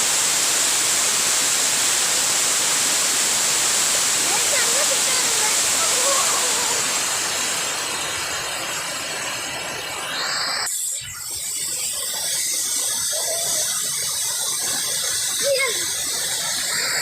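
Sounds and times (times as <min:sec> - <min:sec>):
waterfall rushing: 0:00.0 - 0:10.7.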